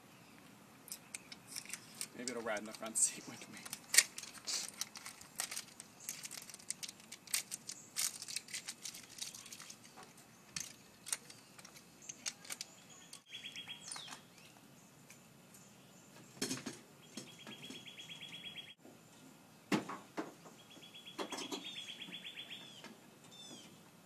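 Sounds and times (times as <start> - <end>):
bags rustling and crinkling: 1.4 - 12.7.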